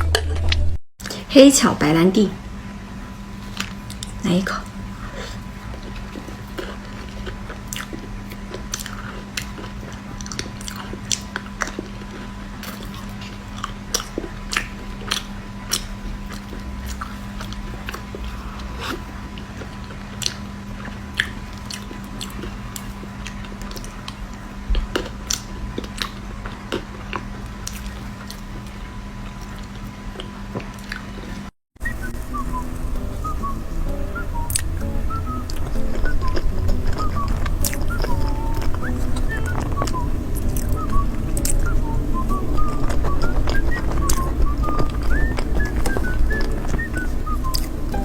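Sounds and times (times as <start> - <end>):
faint hum: 0.0 - 48.0
person chewing cake: 3.3 - 31.5, 32.4 - 47.8
mouth clicks and smacks: 31.8 - 48.0.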